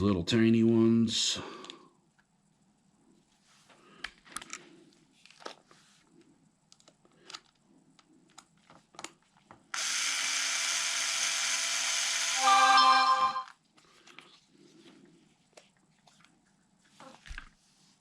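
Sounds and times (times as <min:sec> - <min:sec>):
power tool running: 0:09.8 - 0:12.9.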